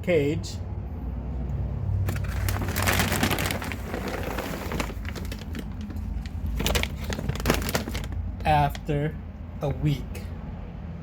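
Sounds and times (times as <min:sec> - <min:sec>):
seed husks rustling and crackling: 0:02.2 - 0:08.9.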